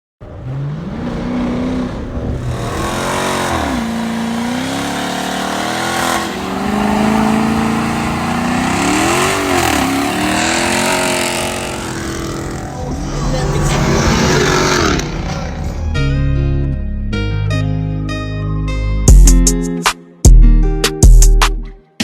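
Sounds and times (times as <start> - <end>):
car engine revving: 0.2 - 16.2.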